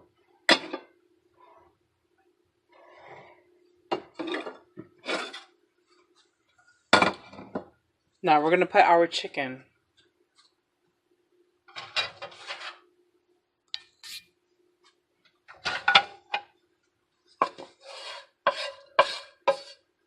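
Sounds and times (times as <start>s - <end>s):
utensil scraping a dish: 17.4s - 19.9s.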